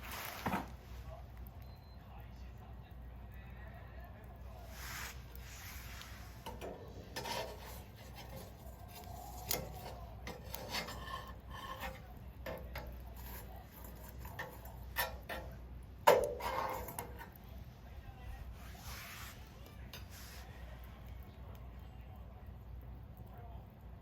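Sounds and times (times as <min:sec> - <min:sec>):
wood fire crackling: 0:00.0 - 0:24.0
rubbing and scraping: 0:04.6 - 0:17.4.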